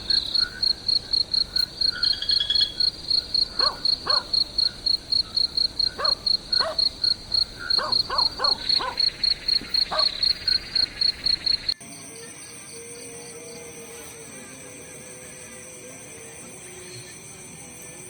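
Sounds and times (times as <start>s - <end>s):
insects trilling: 0.0s - 18.0s
dog yelping: 3.6s - 4.5s, 5.9s - 7.0s, 7.6s - 10.3s.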